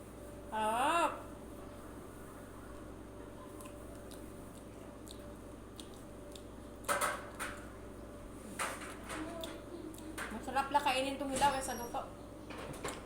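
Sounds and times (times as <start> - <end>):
wet mouth clicks chewing: 3.6 - 6.5.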